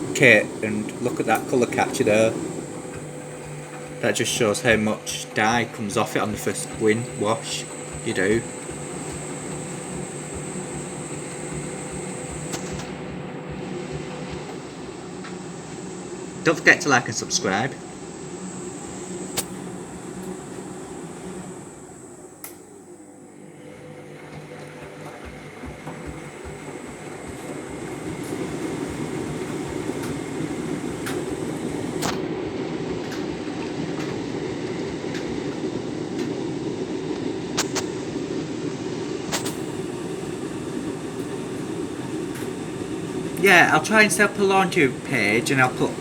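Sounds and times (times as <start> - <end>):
washing machine rumbling: 0.0 - 46.0.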